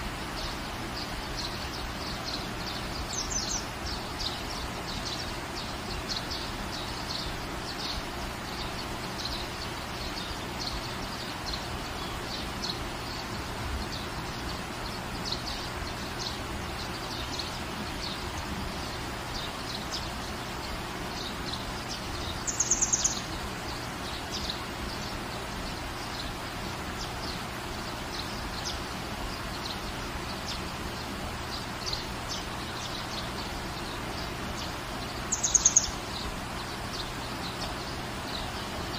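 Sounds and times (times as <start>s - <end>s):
small birds chirping: 0.0s - 38.9s
steady rain falling: 0.0s - 38.9s.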